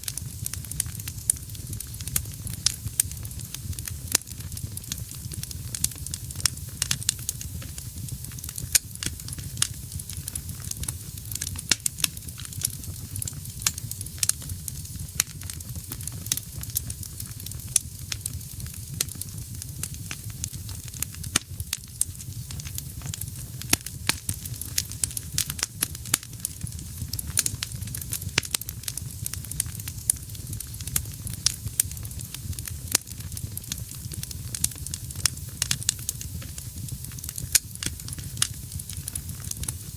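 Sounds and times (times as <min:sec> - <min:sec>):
fire low rumble and hiss: 0:00.0 - 0:39.9
wood fire crackling and popping: 0:00.0 - 0:39.9.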